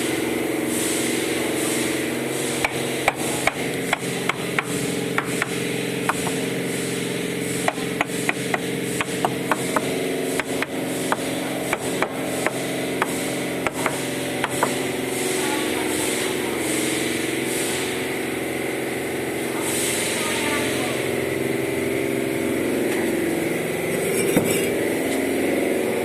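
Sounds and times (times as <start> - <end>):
engine hum: 1.3 - 26.0
trowel knocking bricks: 2.6 - 6.4, 7.5 - 14.9, 24.1 - 24.8.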